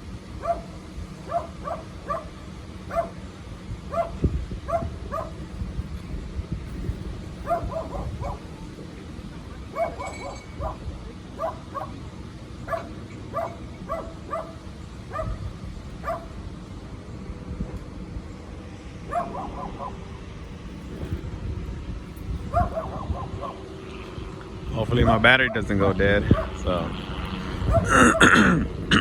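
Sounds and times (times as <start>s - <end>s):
low steady rumble: 0.0s - 28.9s
dog barking: 0.4s - 3.2s, 3.9s - 5.4s, 7.4s - 8.5s, 9.7s - 12.0s, 12.7s - 15.4s, 16.0s - 16.3s, 19.1s - 20.0s, 22.5s - 23.6s, 26.3s - 26.6s, 27.7s - 27.9s.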